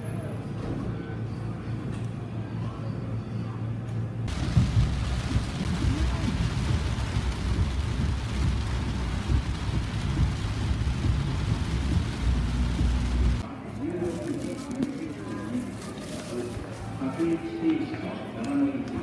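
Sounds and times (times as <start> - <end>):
low road rumble: 4.2 - 13.5
heavy rain on car roof: 4.3 - 13.4.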